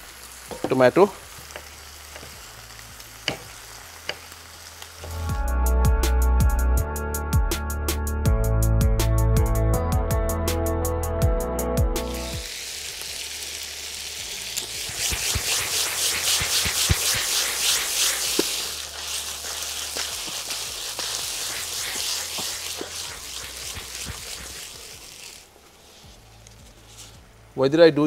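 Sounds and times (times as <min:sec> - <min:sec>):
chicken sizzling in a pan: 0:00.0 - 0:05.4, 0:12.0 - 0:25.5
spatula clicking and scraping: 0:14.8 - 0:25.5.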